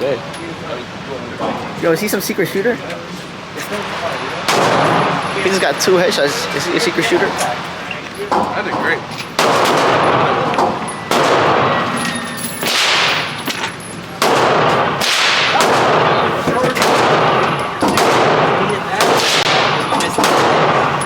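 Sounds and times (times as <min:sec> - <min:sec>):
gunshots with echo: 0:04.4 - 0:05.4, 0:09.4 - 0:12.0, 0:12.6 - 0:13.5, 0:14.2 - 0:21.0.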